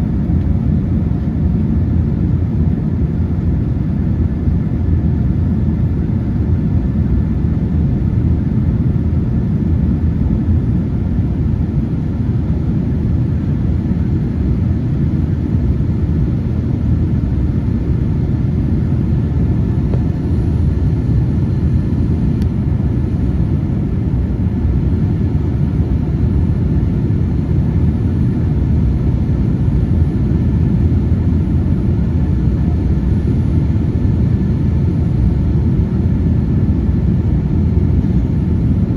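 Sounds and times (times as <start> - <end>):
airliner engines rumbling: 0.0 - 38.9.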